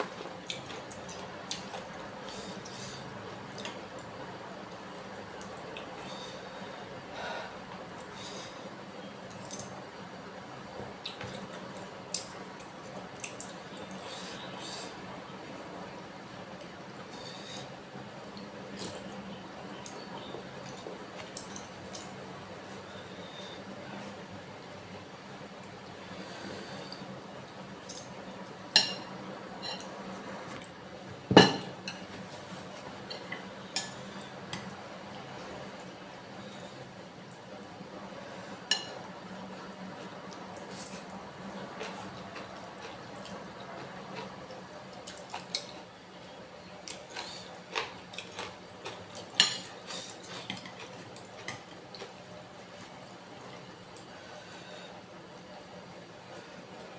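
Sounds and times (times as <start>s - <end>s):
wet chewing and mouth sounds: 40.2s - 45.9s, 46.8s - 54.2s.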